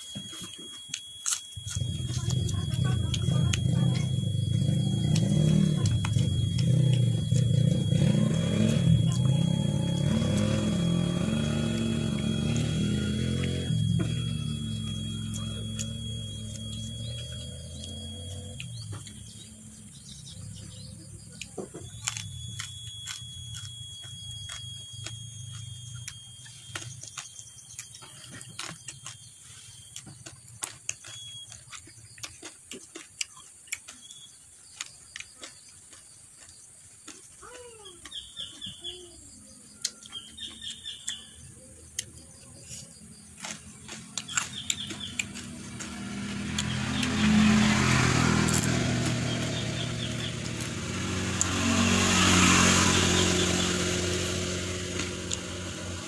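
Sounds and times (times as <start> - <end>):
bird chirps: 0.0 - 32.6, 33.2 - 56.0
chewing and mouth clicks: 0.0 - 55.7
passing motor vehicle: 1.7 - 27.4, 43.1 - 56.0.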